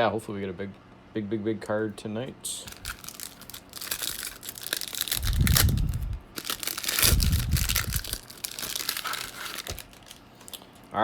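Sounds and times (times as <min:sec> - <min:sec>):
foil wrapper tearing and crinkling: 0:02.6 - 0:10.7.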